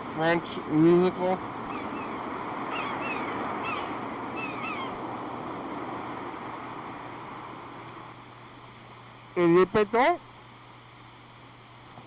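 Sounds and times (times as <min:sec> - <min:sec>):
steady rushing noise: 0:00.0 - 0:09.4
birds chirping: 0:00.3 - 0:06.9.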